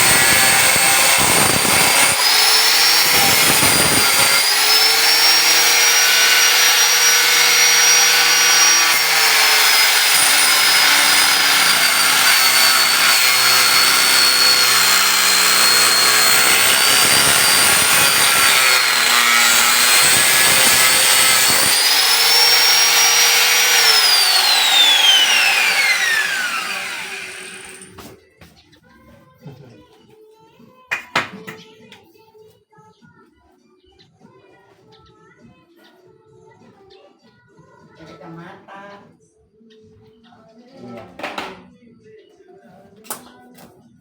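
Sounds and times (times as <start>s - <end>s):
angle grinder cutting metal: 0.0s - 28.0s.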